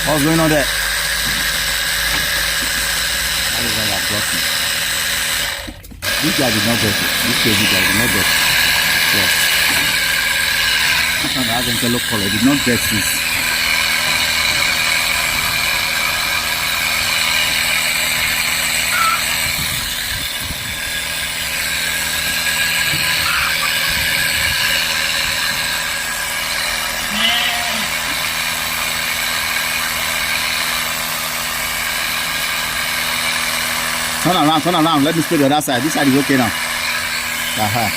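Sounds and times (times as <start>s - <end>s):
small sprayer engine running: 0.0s - 37.9s.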